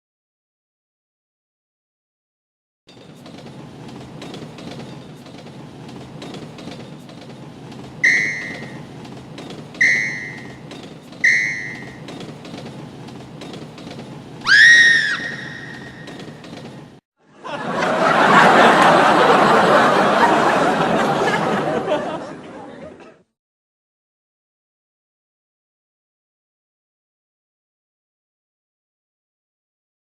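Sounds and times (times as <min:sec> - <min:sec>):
whistle blasts: 0:08.0 - 0:08.8, 0:09.8 - 0:10.6, 0:11.2 - 0:12.0, 0:14.5 - 0:16.2.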